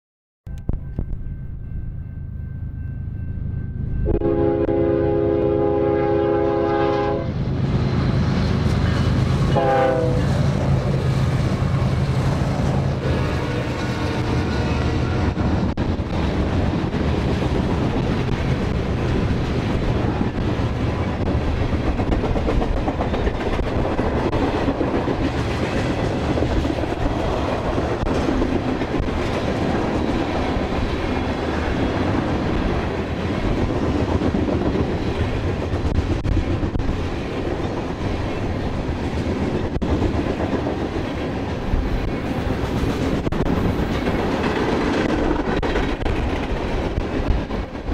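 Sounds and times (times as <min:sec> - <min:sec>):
freight train wheels rumbling: 0:00.5 - 0:47.9.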